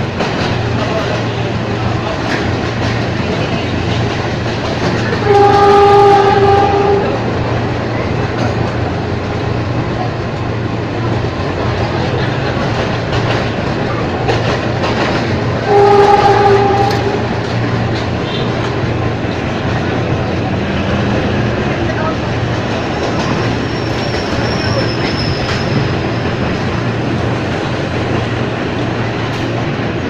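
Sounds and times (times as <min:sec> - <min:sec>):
wheel clatter over rail joints: 0:00.0 - 0:30.0
train horn blasts: 0:05.2 - 0:07.2, 0:15.6 - 0:17.4.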